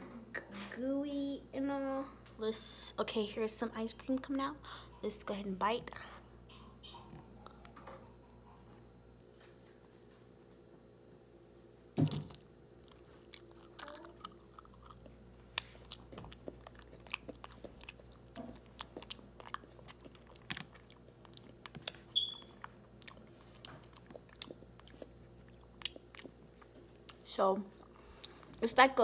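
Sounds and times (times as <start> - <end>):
wet chewing mouth sounds: 12.9 - 28.6.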